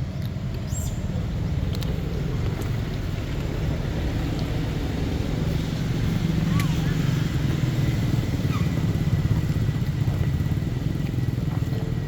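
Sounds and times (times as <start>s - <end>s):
low motor rumble: 0.0s - 12.0s.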